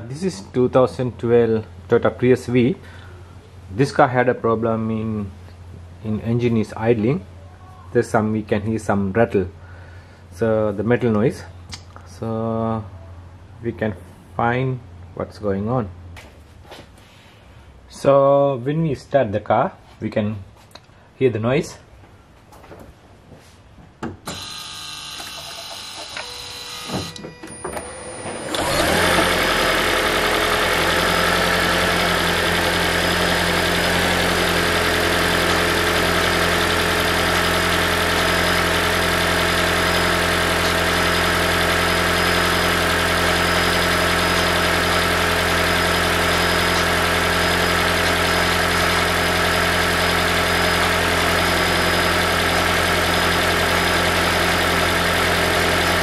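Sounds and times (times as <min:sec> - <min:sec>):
car engine starting and idling: 0:24.2 - 0:56.0.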